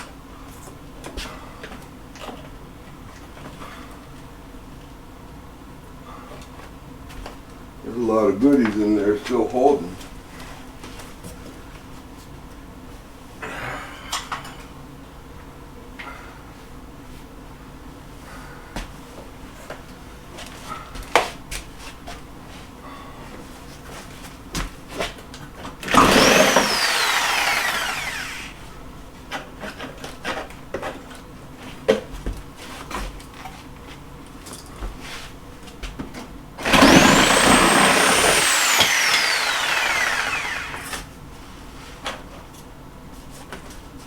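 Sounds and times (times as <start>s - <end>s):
electric saw cutting paneling: 25.9s - 28.7s, 36.6s - 41.0s.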